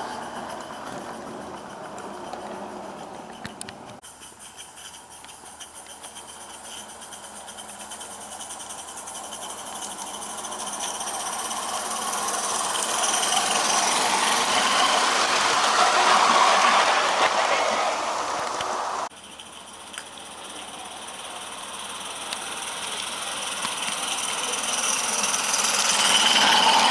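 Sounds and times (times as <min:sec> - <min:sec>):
steam locomotive chuffing: 0:00.0 - 0:26.9
steam hiss: 0:04.0 - 0:19.1, 0:20.3 - 0:26.9.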